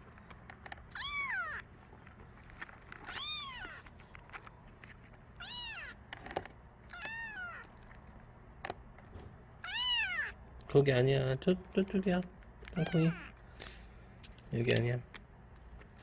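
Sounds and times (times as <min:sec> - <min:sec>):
kitten meowing: 0:00.9 - 0:01.7, 0:03.0 - 0:03.9, 0:05.4 - 0:06.0, 0:06.9 - 0:07.8, 0:09.6 - 0:10.4, 0:12.7 - 0:13.4.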